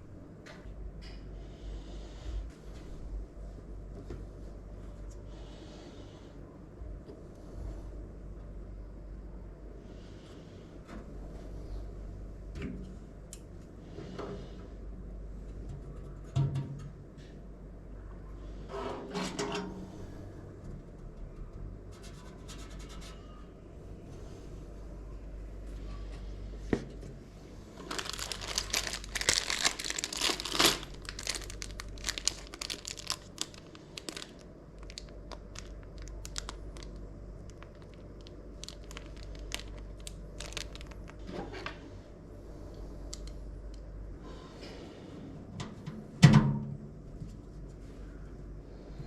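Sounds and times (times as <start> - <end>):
packaging crinkling: 27.8 - 41.3.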